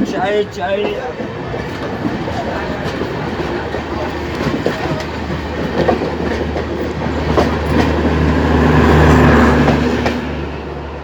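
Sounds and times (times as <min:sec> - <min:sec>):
wheels clacking over rail joints: 0:00.0 - 0:10.8
train rumbling past: 0:00.0 - 0:11.0.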